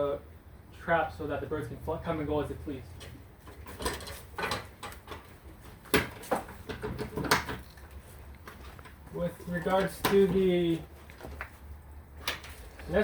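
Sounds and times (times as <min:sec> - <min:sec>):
wooden knocks and clatters: 0:03.4 - 0:10.4.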